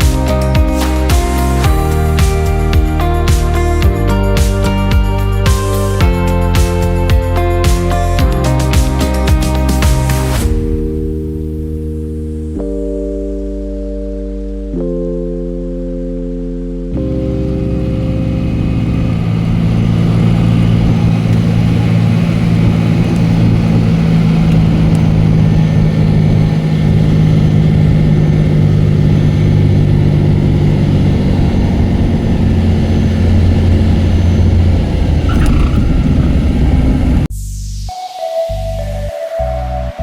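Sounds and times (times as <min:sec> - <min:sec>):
propeller engine droning in cabin: 0:17.0 - 0:37.3.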